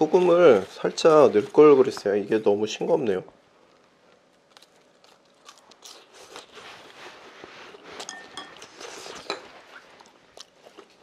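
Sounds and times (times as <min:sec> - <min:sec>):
chewing crunchy fries: 0:03.6 - 0:07.0, 0:07.7 - 0:11.0
dish clinking: 0:08.1 - 0:08.6.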